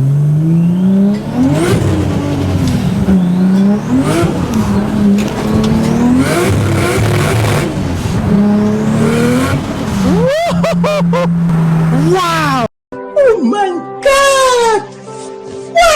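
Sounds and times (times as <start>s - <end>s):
burst of noise at gear shifts: 0.0s - 12.6s
car engine accelerating: 0.0s - 12.7s.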